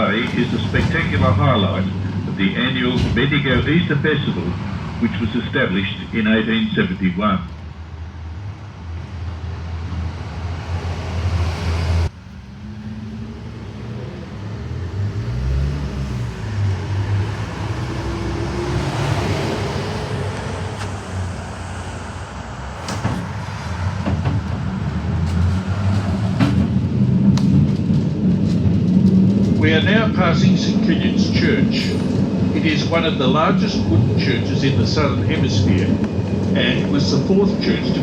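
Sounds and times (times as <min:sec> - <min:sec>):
tram motor hum: 0:00.0 - 0:38.0
wheel-on-rail noise: 0:00.0 - 0:38.0.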